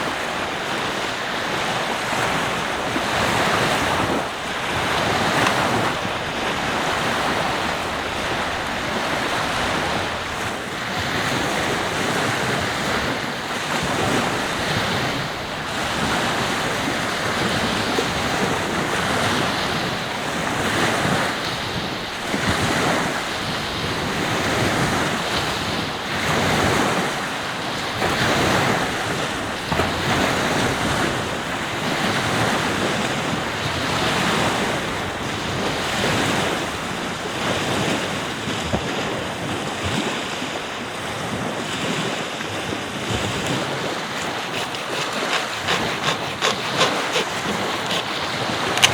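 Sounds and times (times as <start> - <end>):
surf breaking on beach: 0.0 - 48.9
wind buffeting microphone: 0.0 - 48.9.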